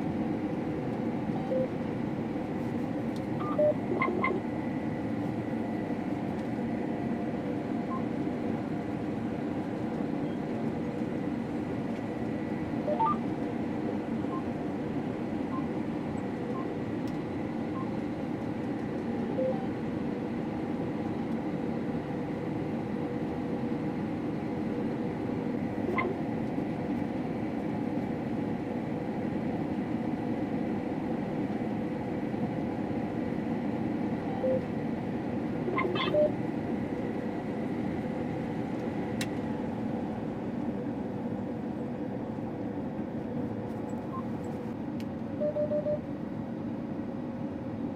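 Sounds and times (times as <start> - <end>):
combine harvester hum and whine: 0.0 - 47.9
short electronic beeps: 1.4 - 1.7, 3.4 - 4.3, 12.8 - 13.2, 35.8 - 36.4, 45.4 - 46.1.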